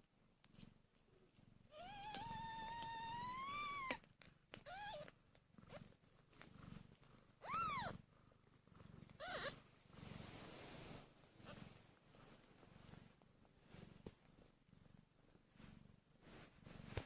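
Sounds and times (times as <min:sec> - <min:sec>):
cat purring: 0:00.4 - 0:17.0
kittens mewing: 0:09.2 - 0:09.6.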